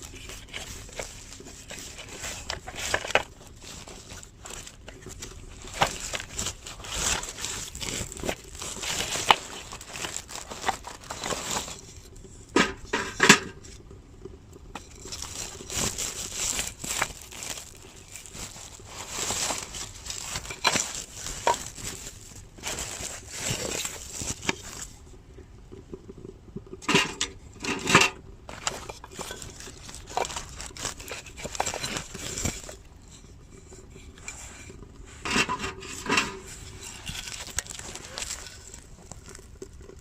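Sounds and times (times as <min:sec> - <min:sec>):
rustling and crinkling: 0:00.0 - 0:25.3, 0:26.0 - 0:40.0
light scrapes and clinks: 0:27.7 - 0:39.4.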